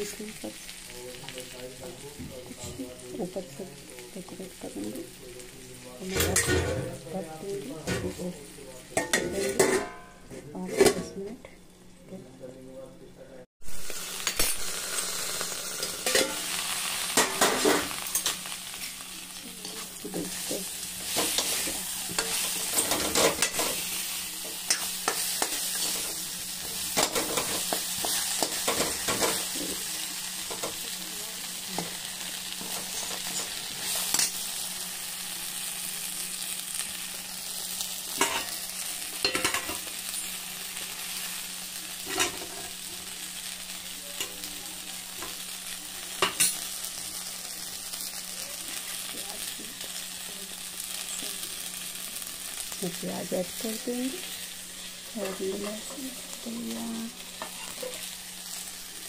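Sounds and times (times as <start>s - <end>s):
eggplants sizzling in oil: 0.0s - 12.6s, 13.6s - 59.0s
spatula scraping a pan: 9.0s - 11.1s, 19.6s - 29.8s.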